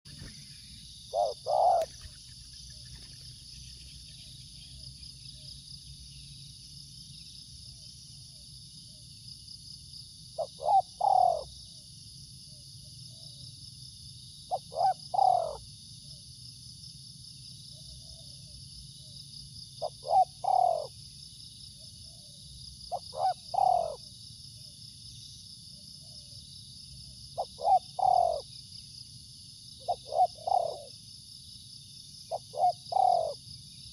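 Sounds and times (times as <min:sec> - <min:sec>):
dove cooing: 0:01.1 - 0:03.2, 0:10.4 - 0:11.5, 0:14.5 - 0:15.7, 0:19.8 - 0:21.0, 0:22.0 - 0:24.1, 0:27.4 - 0:28.5, 0:29.8 - 0:31.0, 0:32.3 - 0:33.4.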